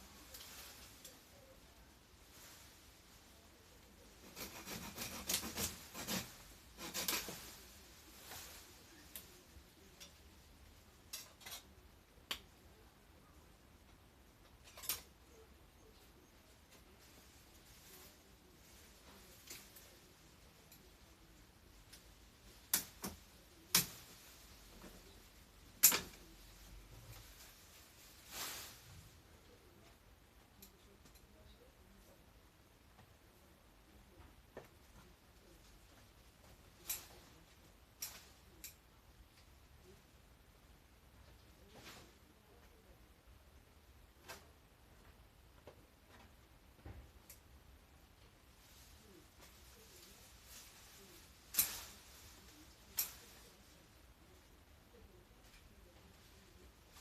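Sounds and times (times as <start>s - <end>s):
rough rasping strokes on woody growth: 4.0s - 9.2s
shears snipping branches: 4.0s - 10.2s, 11.0s - 12.5s, 14.6s - 15.4s, 16.7s - 21.2s, 21.8s - 29.1s, 36.4s - 38.9s, 49.0s - 53.8s.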